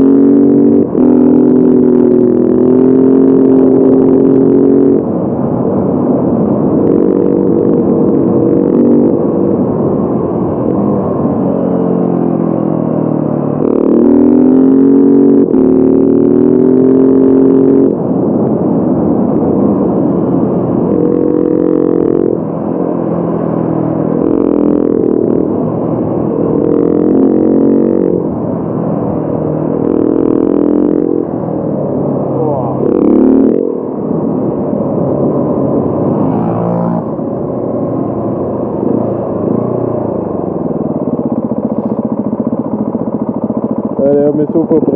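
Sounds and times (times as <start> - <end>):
motorcycle engine shifting gears: 0.0 - 44.9.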